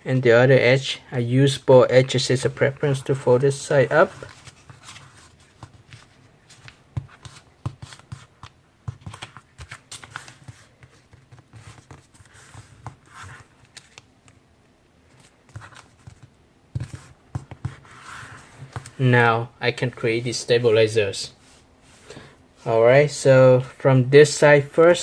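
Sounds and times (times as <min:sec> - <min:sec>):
paper folding and rustling: 0:02.6 - 0:14.4, 0:15.1 - 0:19.0.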